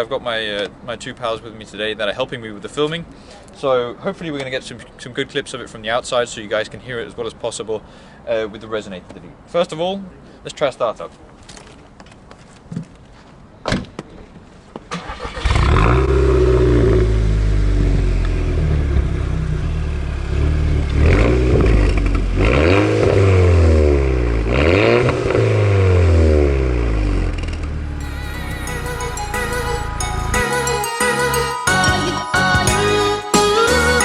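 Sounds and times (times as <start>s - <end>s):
car engine starting and revving: 15.0s - 30.4s
music: 27.8s - 34.0s.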